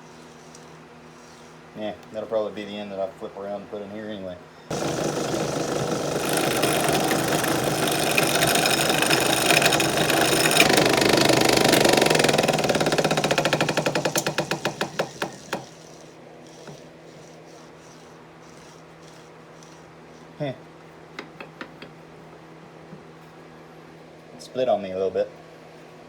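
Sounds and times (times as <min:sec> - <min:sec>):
lathe gouge tearing wood: 0:00.0 - 0:01.7, 0:04.7 - 0:20.4
tool ticking on wood: 0:04.7 - 0:19.8, 0:21.2 - 0:22.0
lathe low hum: 0:04.7 - 0:21.0.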